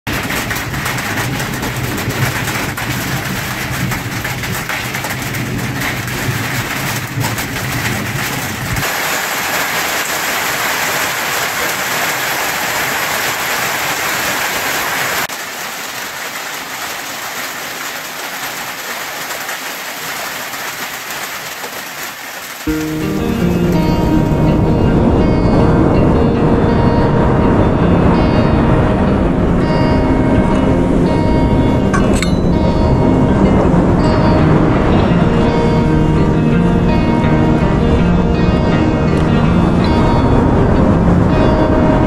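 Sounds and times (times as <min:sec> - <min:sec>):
heavy rain hiss: 0:00.1 - 0:24.6.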